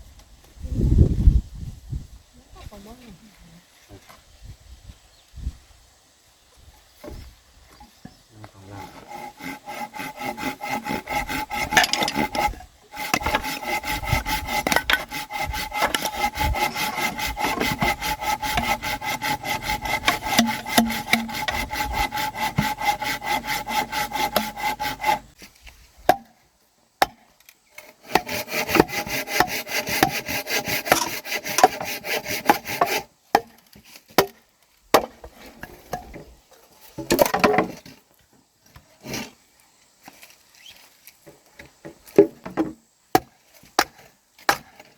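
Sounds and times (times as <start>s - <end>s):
hand saw cutting wood: 8.5s - 25.4s, 27.8s - 34.3s.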